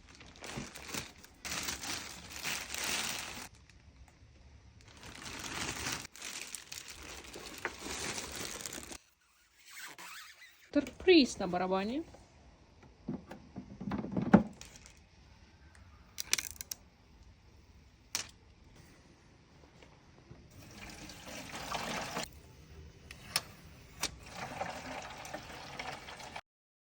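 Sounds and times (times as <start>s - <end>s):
water pouring: 20.5s - 22.3s, 24.2s - 26.4s.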